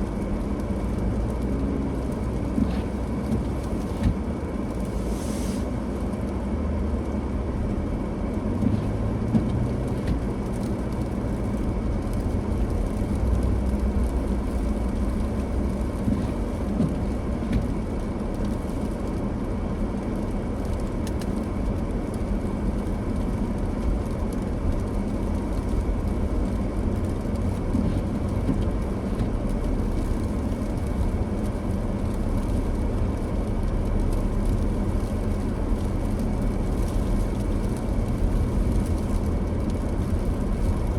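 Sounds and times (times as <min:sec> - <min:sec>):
car engine and tyre rumble: 0:00.0 - 0:40.9.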